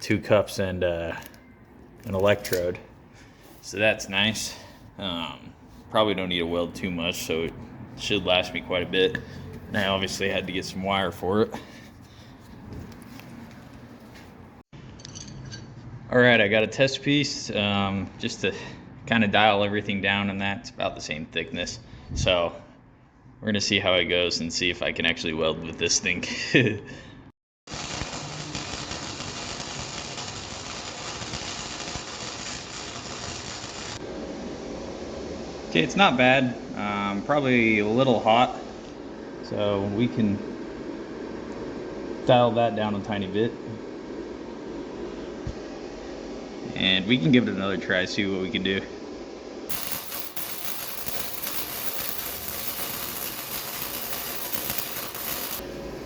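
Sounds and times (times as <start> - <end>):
welding arc crackling: 27.7 - 34.0, 49.7 - 56.0.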